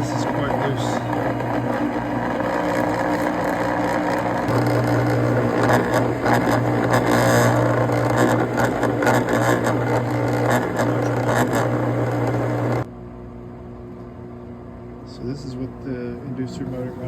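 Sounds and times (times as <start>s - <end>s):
furnace motor humming and rattling: 0.0s - 12.9s.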